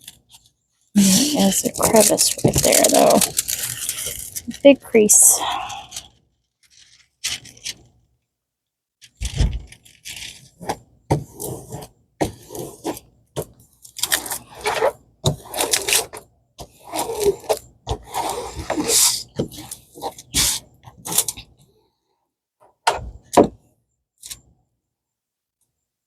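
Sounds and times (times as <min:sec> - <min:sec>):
plastic film rustling and crinkling: 0:01.0 - 0:05.0, 0:05.9 - 0:07.8.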